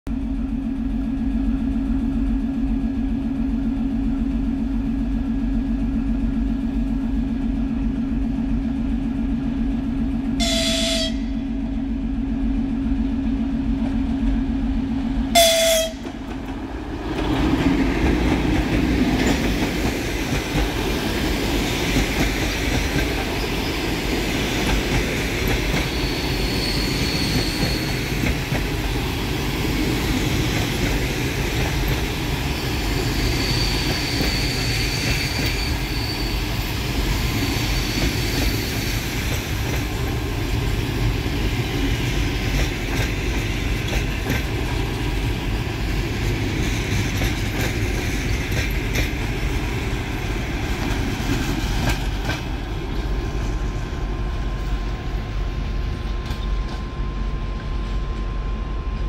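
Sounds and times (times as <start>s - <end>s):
locomotive horn blasts: 10.4s - 11.4s, 15.3s - 16.2s
train wheels clickety-clack: 13.2s - 14.5s, 15.3s - 54.0s, 55.8s - 59.0s.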